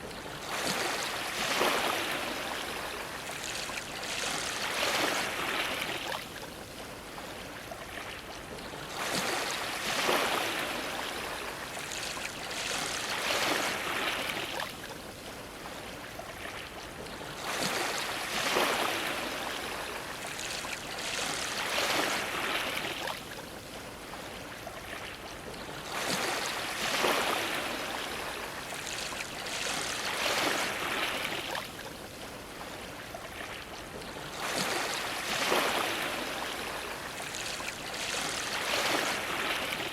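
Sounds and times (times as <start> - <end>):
waves splashing against a dock: 0.0 - 39.9.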